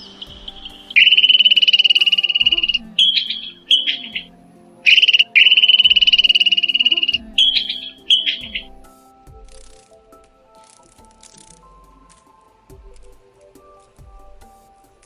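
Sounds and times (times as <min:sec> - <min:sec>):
animal high pulsed trill: 0:00.0 - 0:09.9
soft background music: 0:00.0 - 0:15.0.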